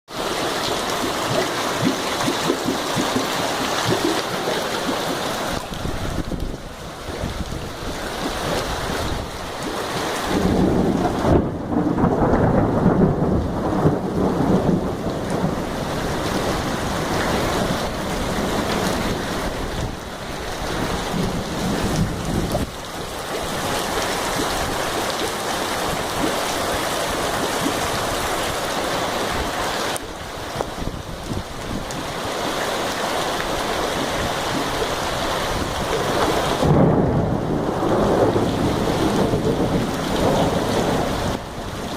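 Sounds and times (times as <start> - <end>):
heavy rain and hail: 0.1 - 41.9
drops plopping into running water: 0.5 - 5.8
wind gusts on microphone: 2.9 - 41.9.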